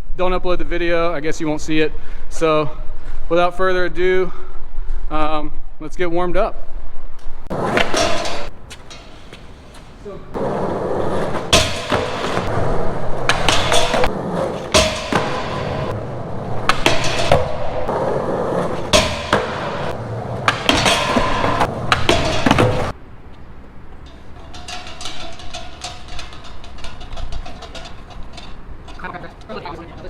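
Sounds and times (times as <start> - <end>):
skateboard wheels rolling on concrete: 7.4 - 30.0
skateboard popping and landing: 7.5 - 23.0.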